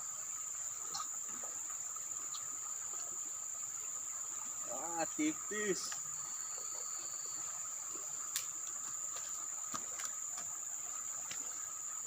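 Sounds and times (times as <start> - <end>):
high-pitched insect chorus: 0.0 - 12.0
faint sharp clicks: 5.8 - 6.1, 8.3 - 8.8.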